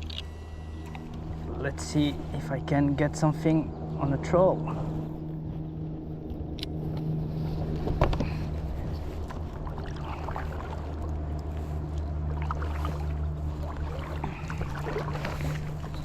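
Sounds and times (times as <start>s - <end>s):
steady low hum: 0.0s - 16.0s
water splashing along kayak hull: 0.8s - 16.0s.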